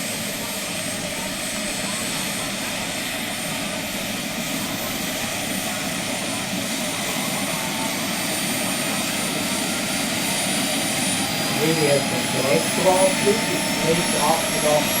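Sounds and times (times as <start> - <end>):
model helicopter rotor noise: 0.0 - 15.0
high motor whine: 10.2 - 15.0.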